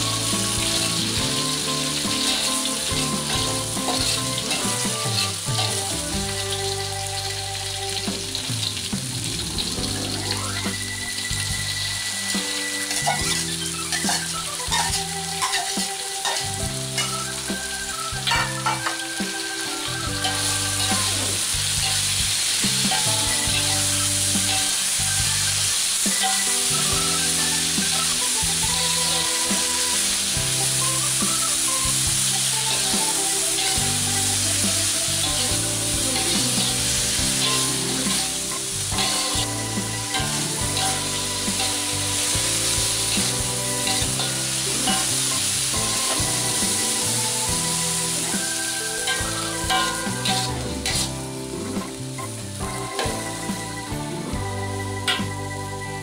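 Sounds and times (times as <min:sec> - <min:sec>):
beans sizzling in a wok: 0:00.0 - 0:56.0
soft background music: 0:00.0 - 0:56.0
spatula scraping a wok: 0:12.9 - 0:17.3, 0:20.2 - 0:28.1, 0:29.0 - 0:51.2.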